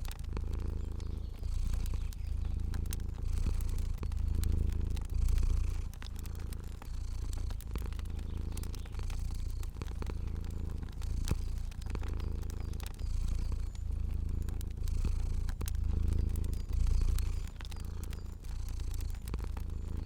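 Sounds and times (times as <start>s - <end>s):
cat purring: 0.0s - 20.0s
faint wood fire crackling: 0.0s - 20.0s.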